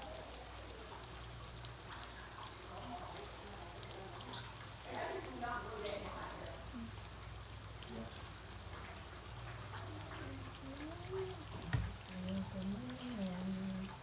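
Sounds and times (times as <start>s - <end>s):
faint distant voices: 0.0s - 14.0s
rain falling: 0.0s - 14.0s
knock: 11.6s - 12.0s.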